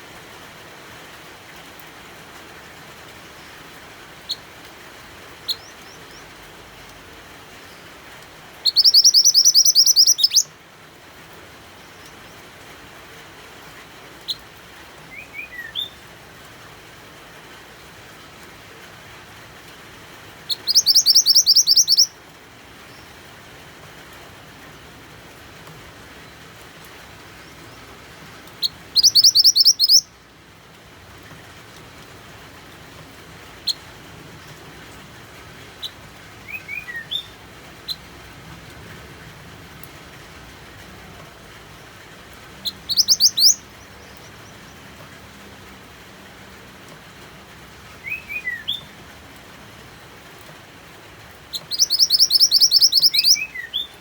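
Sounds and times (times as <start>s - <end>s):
rain hiss: 0.0s - 54.0s
songbird chirping: 5.4s - 6.4s, 8.6s - 10.5s, 15.1s - 16.0s, 20.5s - 22.2s, 26.2s - 30.2s, 35.8s - 38.1s, 41.0s - 45.2s, 48.0s - 49.0s, 51.5s - 54.0s.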